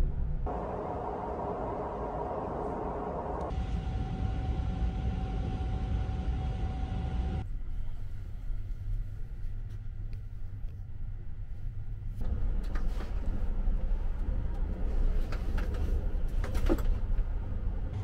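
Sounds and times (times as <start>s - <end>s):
train low rumble: 0.0s - 18.0s
steady whine: 0.5s - 7.6s.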